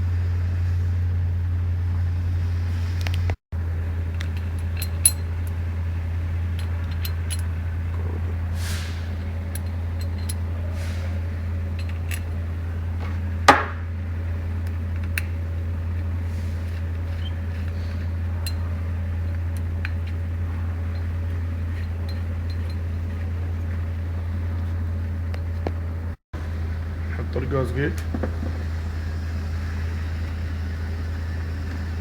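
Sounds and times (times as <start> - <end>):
steady low hum: 0.0 - 32.0
metal parts clicking and clinking: 4.0 - 8.4, 9.1 - 13.7, 14.6 - 23.8
metal clank: 4.2 - 5.6, 6.5 - 12.4, 13.0 - 13.9.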